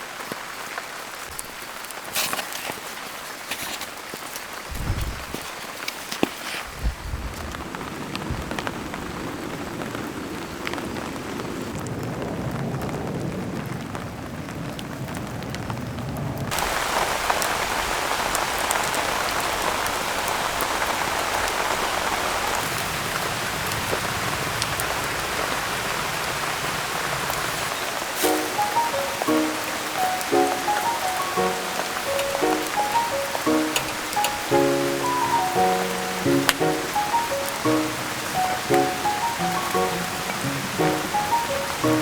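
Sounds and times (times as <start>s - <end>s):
steady rain falling: 0.0s - 42.0s
raindrops tapping: 27.4s - 42.0s.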